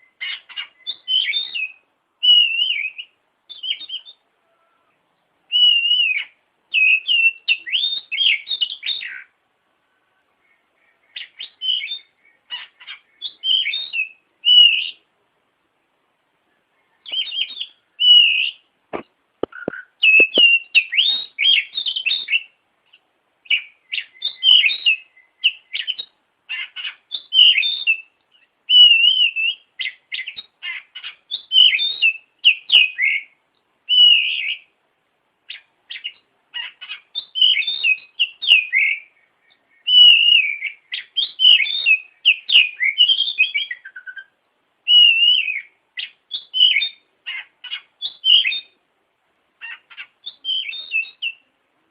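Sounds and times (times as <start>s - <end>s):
songbird singing: 0.0s - 51.9s
sharp clicks: 18.9s - 20.5s.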